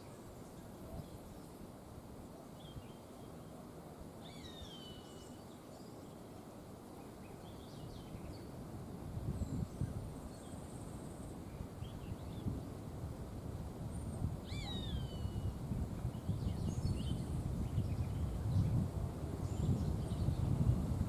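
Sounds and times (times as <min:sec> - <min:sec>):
wind in trees: 0:00.0 - 0:21.0
bird calls: 0:14.5 - 0:15.5.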